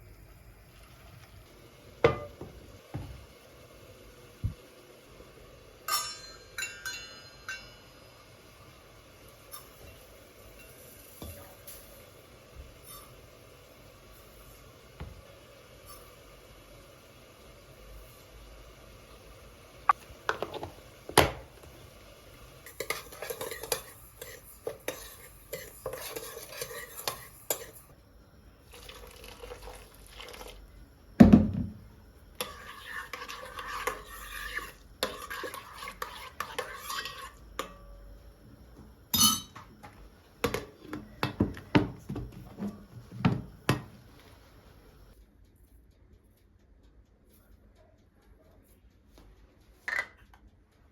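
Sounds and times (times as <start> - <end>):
cutlery and dishes clinking: 5.9 - 7.8, 22.7 - 27.8, 39.2 - 39.7.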